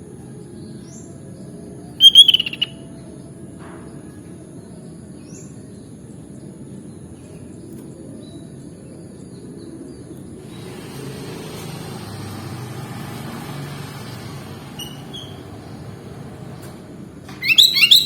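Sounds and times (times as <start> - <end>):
bird chirping: 2.0 - 2.8, 17.4 - 18.0
vehicle noise: 2.0 - 2.8, 17.3 - 18.0.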